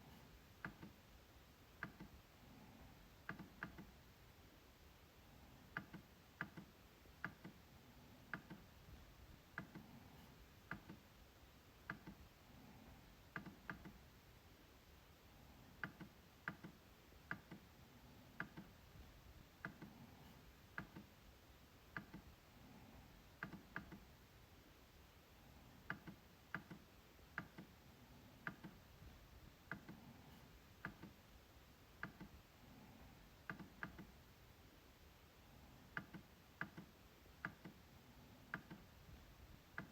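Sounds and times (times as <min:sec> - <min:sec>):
trackpad clicks: 0:01.8 - 0:02.2, 0:03.2 - 0:03.9, 0:05.7 - 0:07.6, 0:10.7 - 0:11.0, 0:13.3 - 0:14.0, 0:15.8 - 0:17.7, 0:18.4 - 0:18.7, 0:20.7 - 0:21.1, 0:21.9 - 0:22.3, 0:25.9 - 0:27.7, 0:28.4 - 0:28.8, 0:30.8 - 0:31.2, 0:32.0 - 0:32.4, 0:33.4 - 0:34.2, 0:35.9 - 0:37.8, 0:38.5 - 0:38.9
trackpad clicking: 0:05.8 - 0:07.6, 0:33.5 - 0:34.1.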